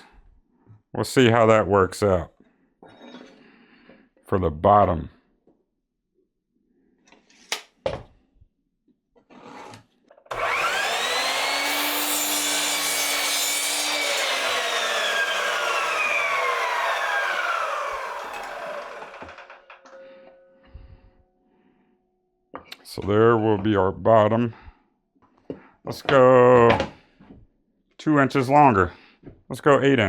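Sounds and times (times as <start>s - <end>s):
power saw cutting wood: 10.3s - 19.9s.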